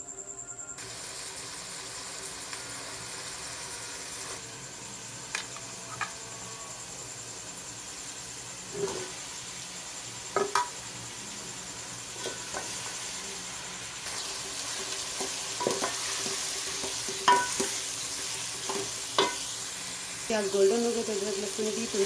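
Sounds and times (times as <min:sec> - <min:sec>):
onions sizzling in hot oil: 0:00.8 - 0:22.0
spoon knocking against pot: 0:17.2 - 0:17.7.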